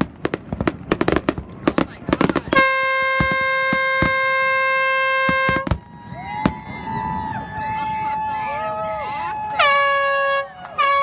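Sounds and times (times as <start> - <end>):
fireworks bangs: 0.0 - 11.0
boat horn long note: 2.6 - 5.6, 9.6 - 11.0.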